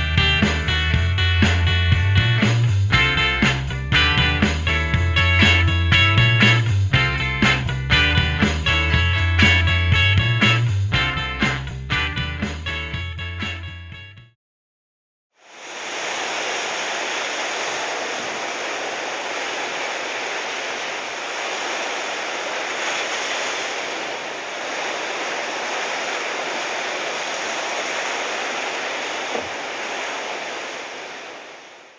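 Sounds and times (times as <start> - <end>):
ocean surf rushing: 15.4 - 31.9.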